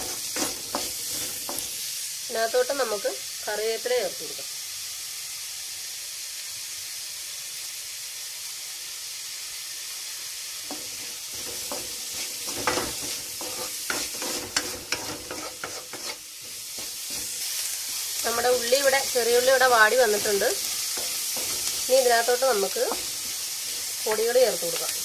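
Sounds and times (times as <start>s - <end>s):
spatula scraping metal pan: 0.0s - 1.8s, 10.7s - 25.0s
food sizzling in hot oil: 0.0s - 25.0s.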